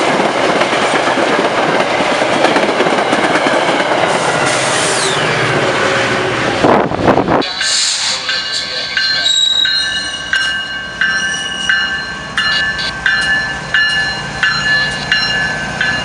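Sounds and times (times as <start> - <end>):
freight train passing at speed: 0.0 - 16.0
high ringing tone from wheels: 7.5 - 16.0.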